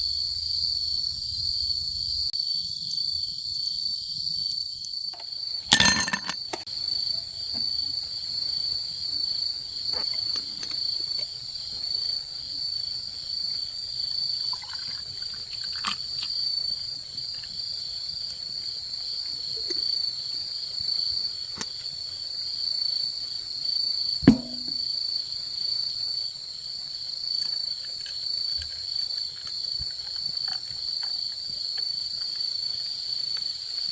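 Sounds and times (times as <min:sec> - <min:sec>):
crickets trilling: 0:00.0 - 0:33.9
campfire crackling: 0:06.7 - 0:23.6.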